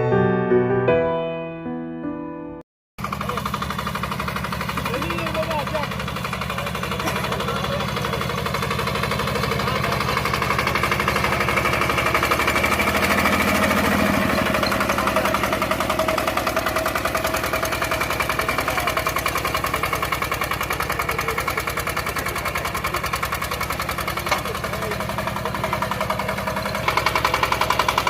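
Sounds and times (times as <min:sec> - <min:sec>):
diesel engine running: 0:03.0 - 0:28.0.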